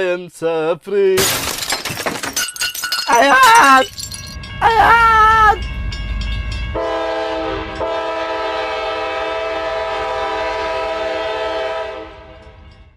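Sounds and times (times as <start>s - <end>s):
train horn blasts: 6.6s - 12.8s.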